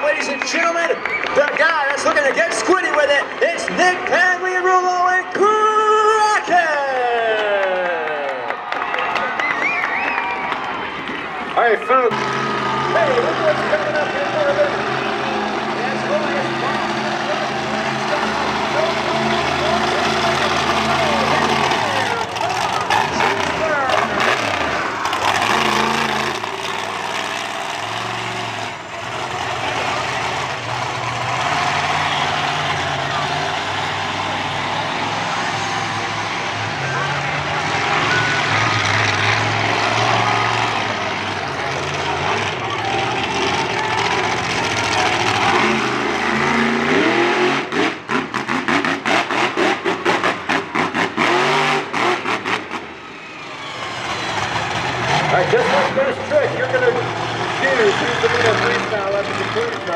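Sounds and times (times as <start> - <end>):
truck engine running at low revs: 10.6 - 59.9.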